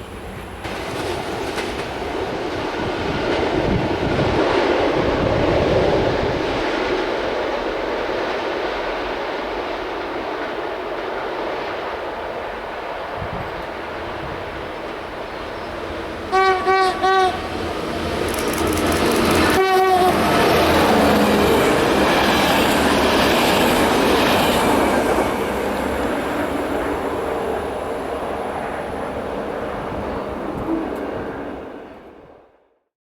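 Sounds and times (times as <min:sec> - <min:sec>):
passing train running noise: 0:00.0 - 0:32.8
train horn blasts: 0:16.3 - 0:17.8, 0:19.2 - 0:22.0.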